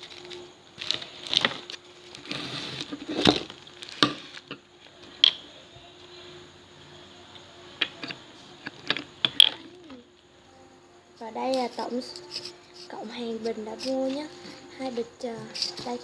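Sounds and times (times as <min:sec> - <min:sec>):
plastic bags rustling: 0:00.0 - 0:05.0
plastic packets tapping and clicking: 0:03.1 - 0:04.6.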